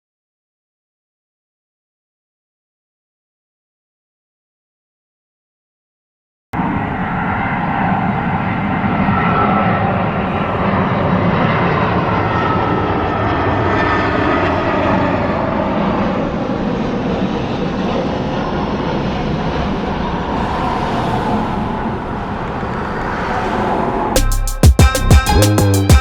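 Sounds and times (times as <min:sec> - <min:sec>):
jet engine rumble with whine: 0:06.6 - 0:24.6.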